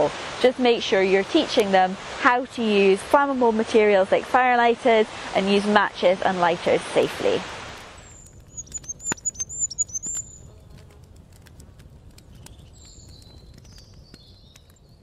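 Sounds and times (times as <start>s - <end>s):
small bird chirping: 8.0s - 10.6s, 12.3s - 15.0s.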